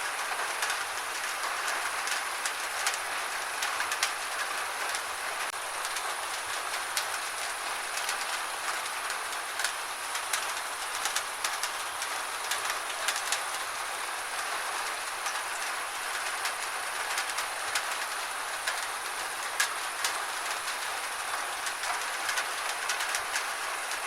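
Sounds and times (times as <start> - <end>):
gentle rain falling: 0.0 - 24.0
raindrops tapping: 3.9 - 14.5.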